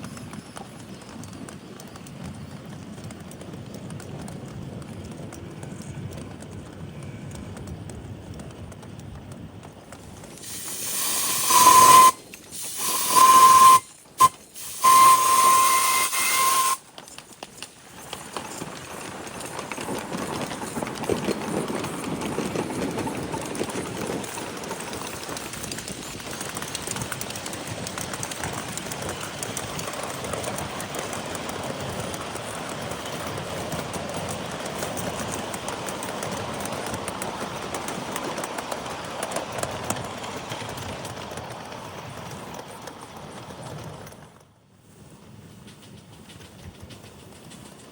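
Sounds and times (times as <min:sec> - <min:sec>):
train running along track: 0:00.0 - 0:47.9
steam locomotive whistle blasts: 0:10.5 - 0:16.8.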